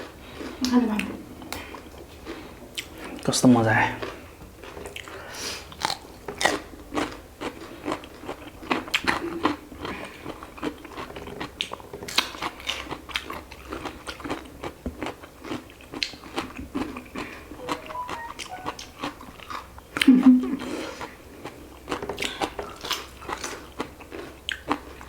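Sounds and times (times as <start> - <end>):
person chewing food: 4.0 - 19.0, 21.4 - 25.0.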